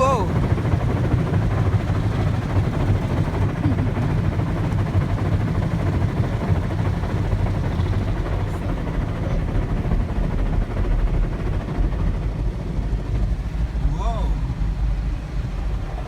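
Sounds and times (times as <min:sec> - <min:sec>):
car wash machinery rumble: 0:00.0 - 0:09.4, 0:12.6 - 0:16.0.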